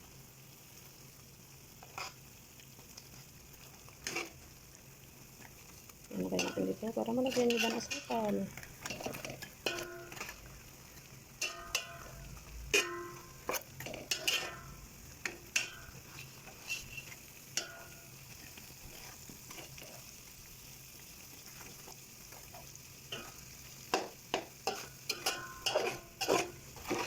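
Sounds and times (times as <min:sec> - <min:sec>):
low sizzle: 0:00.0 - 0:27.0
utensil scraping a pan: 0:01.8 - 0:02.2, 0:04.0 - 0:04.4, 0:06.3 - 0:20.1, 0:21.6 - 0:27.0.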